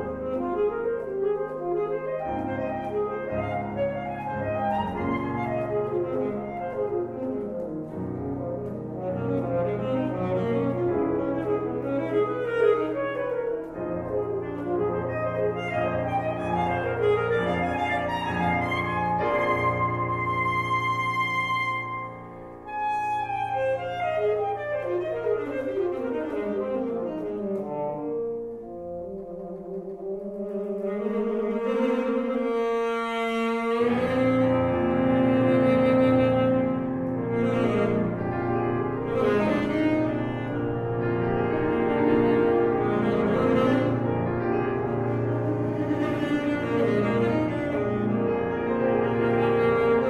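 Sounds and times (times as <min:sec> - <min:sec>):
piano: 0:00.0 - 0:50.0
saxophone: 0:00.0 - 0:50.0
saxophone sustained notes: 0:30.0 - 0:50.0.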